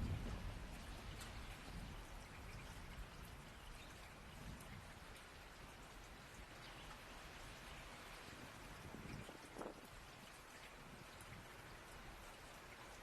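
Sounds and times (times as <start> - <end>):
thunder rumble: 0.0 - 2.1
soft steady rain: 0.0 - 13.0.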